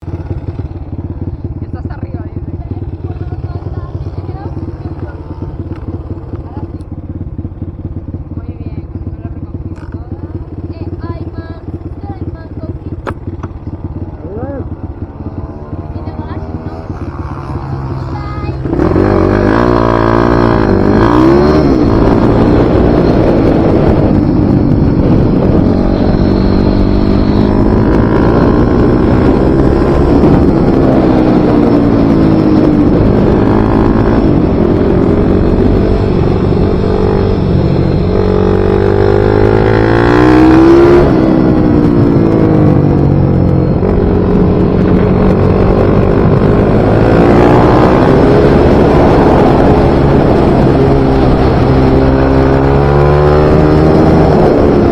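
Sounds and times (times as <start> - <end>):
small motorcycle engine racing: 12.6 - 54.9.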